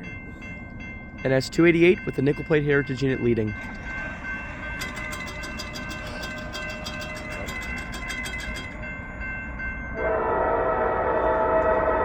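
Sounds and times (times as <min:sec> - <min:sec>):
crossing bell ringing: 0:00.0 - 0:10.7
locomotive air horn blast: 0:10.0 - 0:12.0.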